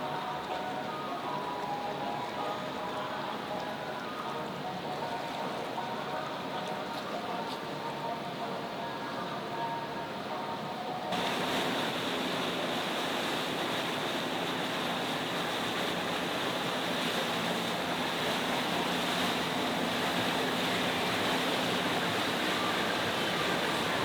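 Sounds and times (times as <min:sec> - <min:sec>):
moving water: 0:00.0 - 0:24.0
faint low engine drone: 0:11.1 - 0:24.0.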